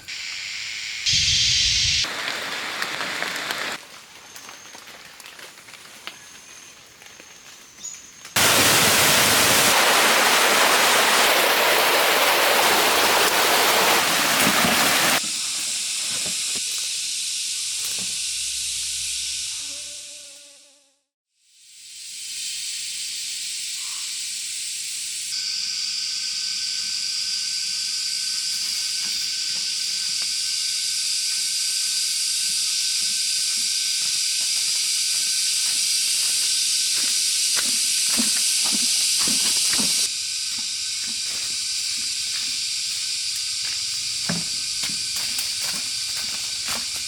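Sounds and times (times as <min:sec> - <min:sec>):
high-pitched insect drone: 0:00.0 - 0:03.7, 0:15.2 - 0:47.0.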